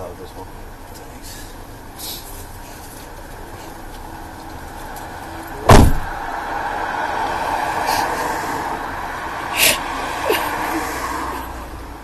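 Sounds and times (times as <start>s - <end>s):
vehicle hum: 0.0s - 12.0s
car door slamming: 5.6s - 6.3s.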